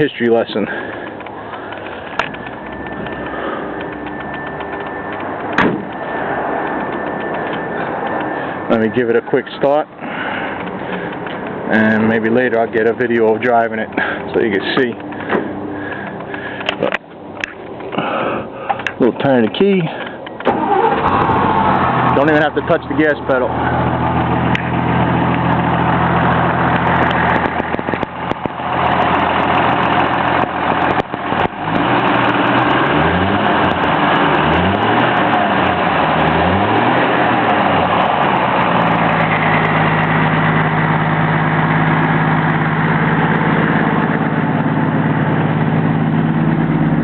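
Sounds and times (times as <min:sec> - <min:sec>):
pickup engine rumbling: 0:00.0 - 0:47.0
sharp clicks: 0:00.9 - 0:06.0, 0:06.6 - 0:08.3, 0:13.9 - 0:18.0.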